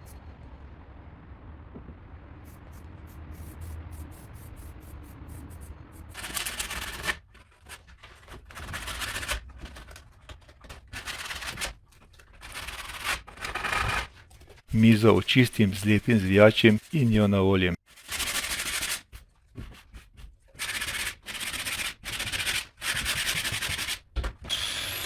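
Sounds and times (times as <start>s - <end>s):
low hum: 0.0s - 6.8s.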